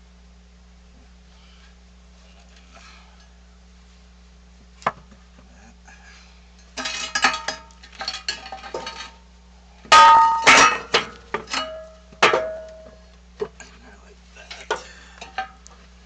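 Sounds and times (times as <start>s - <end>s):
steel tools clanking: 6.6s - 9.2s, 9.9s - 13.0s, 14.4s - 15.6s.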